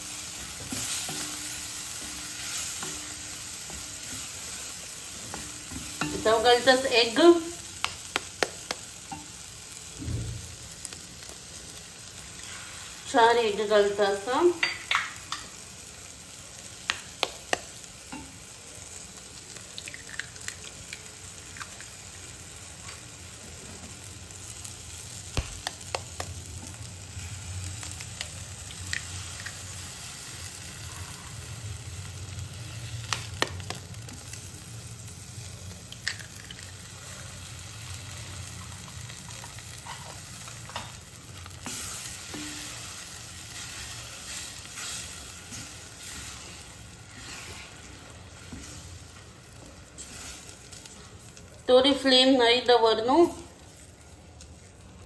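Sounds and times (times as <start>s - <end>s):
food sizzling in oil: 0.0s - 55.0s
eggs being cracked: 19.8s - 21.9s, 35.9s - 36.8s.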